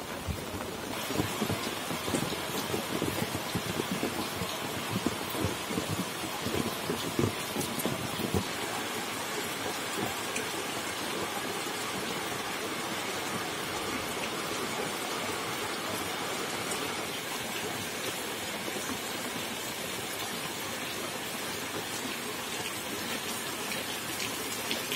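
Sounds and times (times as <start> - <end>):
steady rain: 0.0 - 24.9
drops ticking: 0.3 - 14.6.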